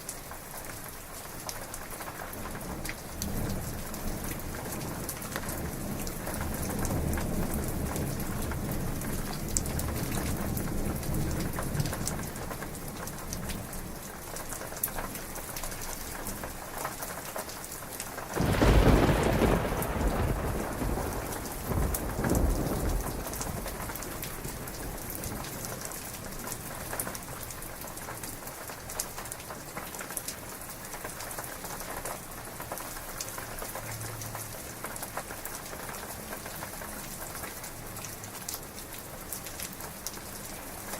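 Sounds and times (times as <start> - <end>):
heavy rain falling: 0.0 - 40.9
thunder rumbling: 18.3 - 26.5
loud thunderclap: 18.4 - 25.5.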